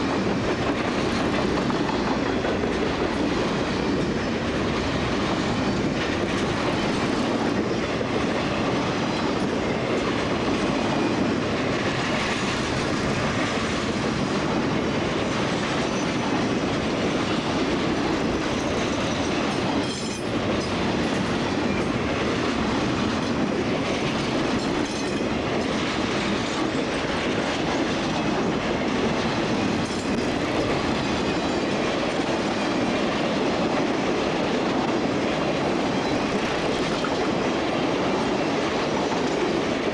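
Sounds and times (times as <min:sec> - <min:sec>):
freight train rolling: 0:00.0 - 0:39.9
wheels clacking over rail joints: 0:00.0 - 0:39.9.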